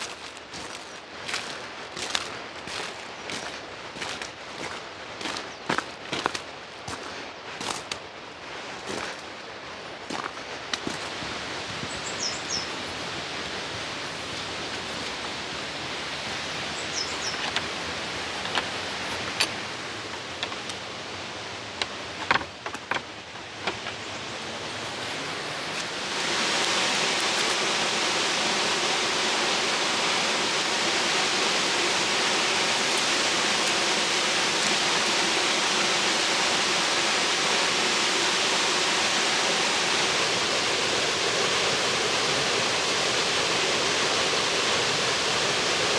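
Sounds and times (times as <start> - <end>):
waterfall rushing: 0.0 - 23.6, 24.3 - 45.9
sharp clicks and knocks: 21.8 - 24.0.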